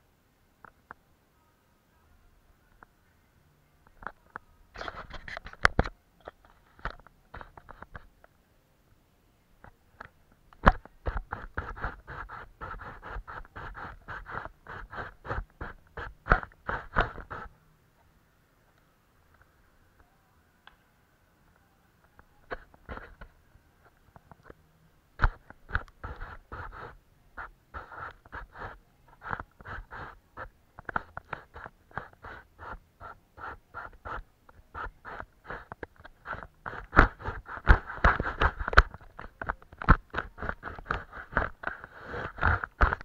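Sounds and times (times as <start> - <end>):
paintbrush strokes on paper: 10.6 - 17.6, 25.2 - 43.0.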